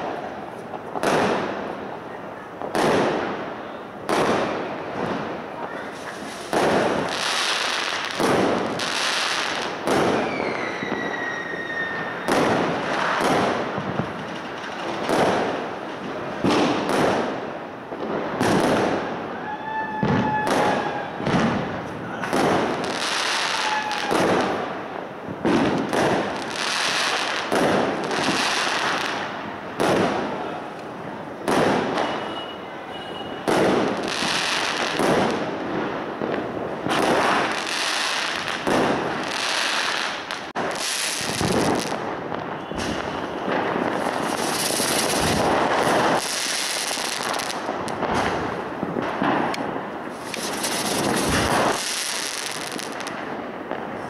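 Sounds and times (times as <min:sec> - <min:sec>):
fireworks bursting: 0:00.0 - 0:54.0
firework whistles sliding down: 0:10.2 - 0:12.4.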